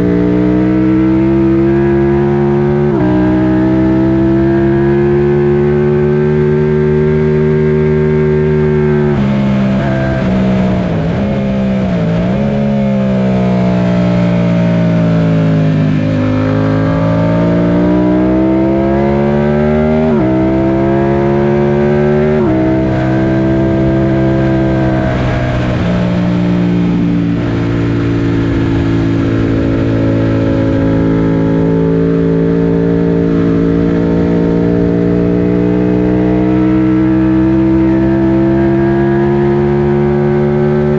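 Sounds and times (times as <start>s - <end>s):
motorcycle engine at speed: 0.0s - 40.9s
rush of noise: 22.2s - 32.6s.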